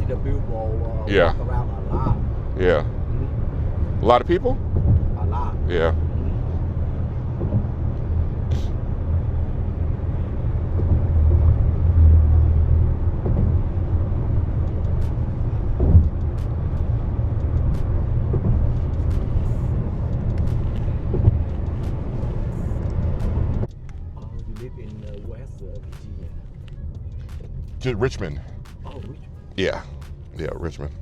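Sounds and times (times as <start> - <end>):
car road and engine rumble: 0.0 - 31.0.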